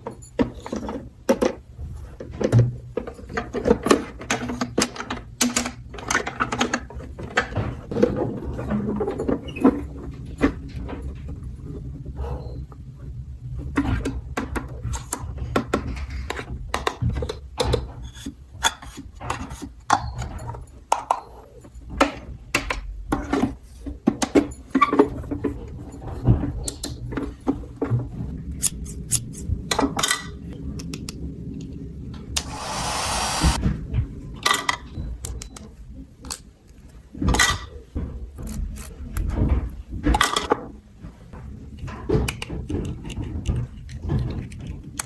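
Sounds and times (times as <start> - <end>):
short hiss: 32.4 - 33.6.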